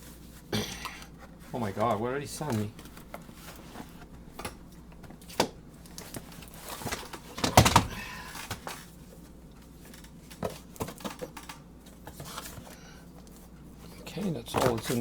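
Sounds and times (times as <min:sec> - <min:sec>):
items knocking when set down: 0:01.7 - 0:08.9.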